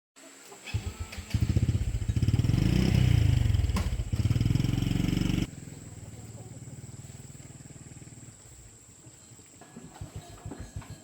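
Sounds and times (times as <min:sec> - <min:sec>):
tractor engine revving: 0:00.7 - 0:08.4.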